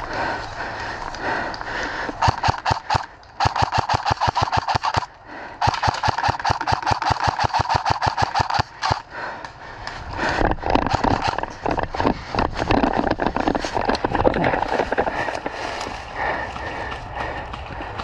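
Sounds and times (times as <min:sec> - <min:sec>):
airsoft gun firing: 0:02.2 - 0:09.0.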